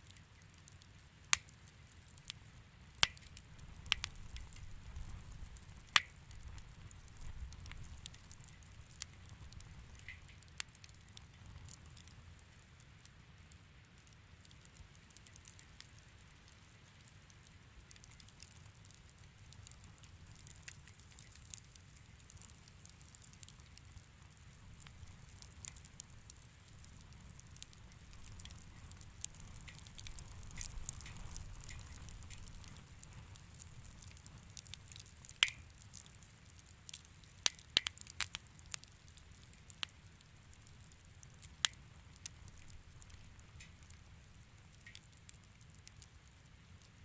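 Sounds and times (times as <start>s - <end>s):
fireplace fire crackling: 0.0s - 47.0s.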